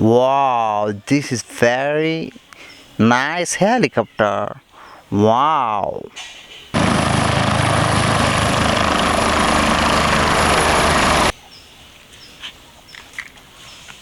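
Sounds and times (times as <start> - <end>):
helicopter rotor and engine: 6.8 - 11.3.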